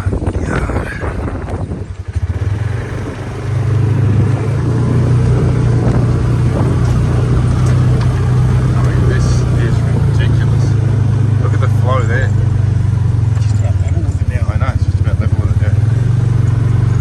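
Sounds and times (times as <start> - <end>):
vehicle engine droning: 0.0 - 17.0
knocks and rattles: 2.7 - 14.4.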